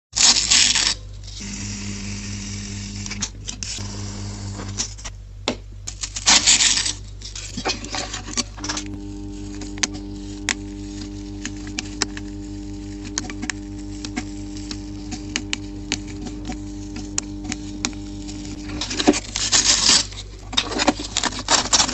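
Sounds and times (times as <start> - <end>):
loud rasping burst: 1.4 - 5.0, 8.6 - 20.0
machine motor humming: 1.4 - 5.1, 8.4 - 20.5.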